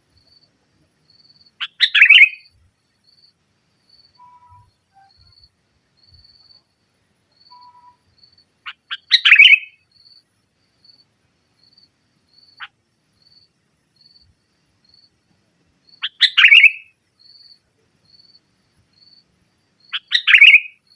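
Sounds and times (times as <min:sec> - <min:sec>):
faint high peep: 0:04.0 - 0:05.5, 0:07.4 - 0:08.4
bird chattering calls: 0:16.0 - 0:16.8.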